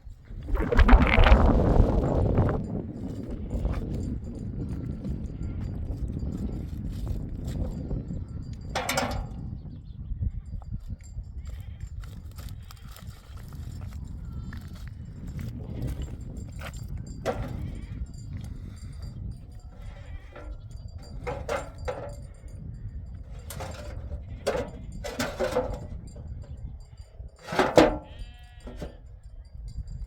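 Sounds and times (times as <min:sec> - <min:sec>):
livestock bleating: 0:19.8 - 0:20.6, 0:28.0 - 0:29.0.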